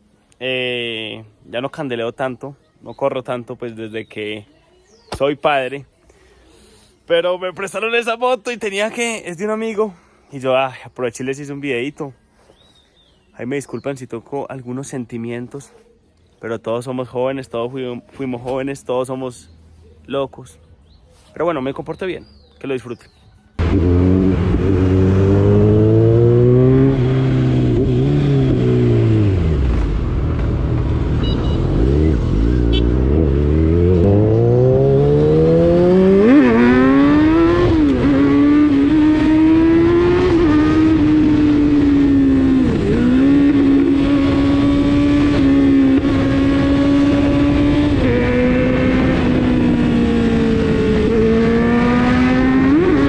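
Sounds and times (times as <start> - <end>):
motorcycle engine revving: 23.6 - 53.0.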